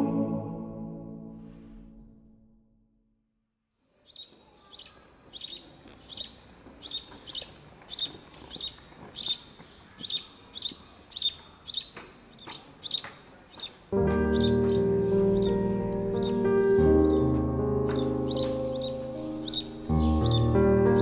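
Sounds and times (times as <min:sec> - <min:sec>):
small bird chirping: 0:04.0 - 0:16.4, 0:18.0 - 0:20.5.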